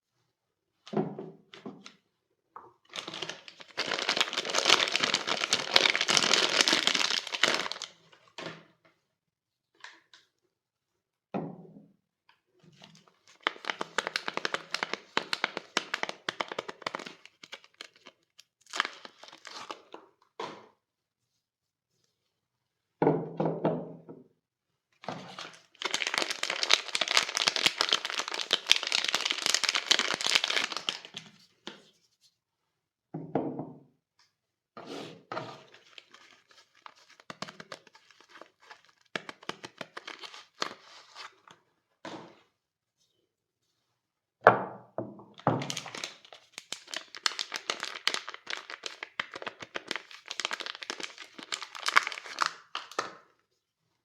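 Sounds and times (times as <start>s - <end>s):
wrapping crinkling and tearing: 2.9s - 8.2s, 12.8s - 20.0s, 25.1s - 31.4s, 35.6s - 41.5s, 45.6s - 53.1s.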